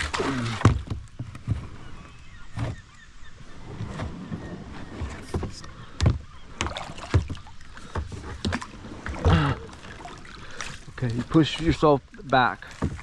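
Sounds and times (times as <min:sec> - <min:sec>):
water sloshing: 0:00.0 - 0:13.0
paddle knocking on kayak hull: 0:05.0 - 0:09.3, 0:12.7 - 0:13.0.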